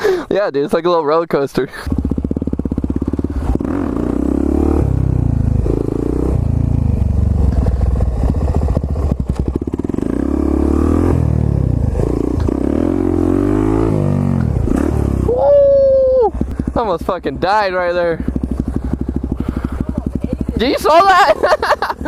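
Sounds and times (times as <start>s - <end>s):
dirt bike engine revving: 1.8s - 22.0s.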